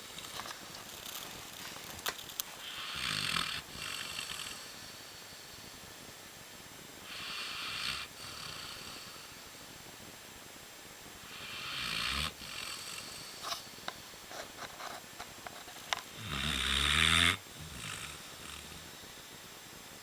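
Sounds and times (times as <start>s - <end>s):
dog snoring: 2.6s - 5.6s, 7.0s - 9.5s, 11.2s - 13.7s, 16.1s - 18.9s.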